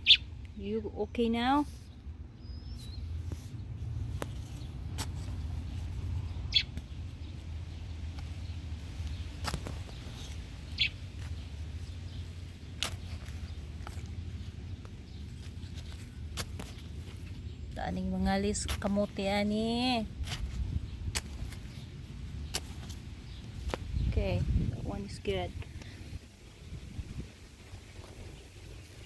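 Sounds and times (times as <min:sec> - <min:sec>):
bird chirps: 0:00.0 - 0:00.3, 0:02.4 - 0:03.6, 0:06.2 - 0:15.5
steady low rumble: 0:00.0 - 0:29.0.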